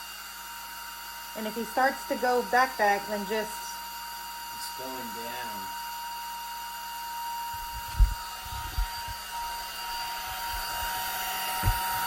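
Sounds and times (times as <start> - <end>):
hair dryer running: 0.0 - 12.0
low thumps: 7.6 - 9.2.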